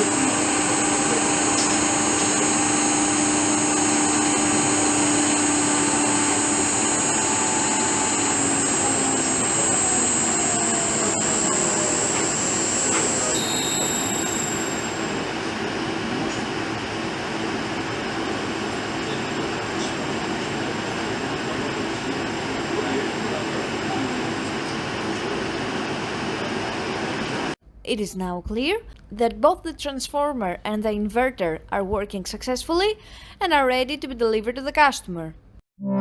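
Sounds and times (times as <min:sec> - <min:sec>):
electric motor running: 0:00.0 - 0:15.2
high thin whine: 0:00.0 - 0:15.4
tone gliding downward: 0:35.8 - 0:36.0.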